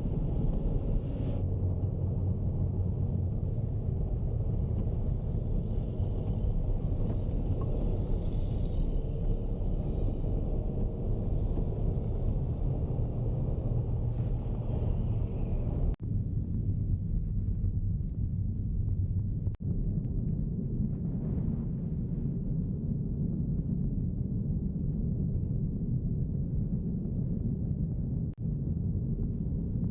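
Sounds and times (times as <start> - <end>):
car engine and tyres rumbling: 0.0 - 19.6.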